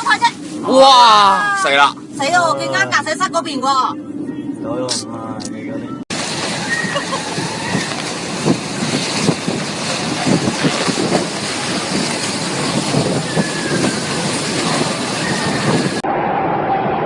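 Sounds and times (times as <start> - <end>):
strong wind: 5.9 - 17.0
heavy rain: 6.1 - 16.0.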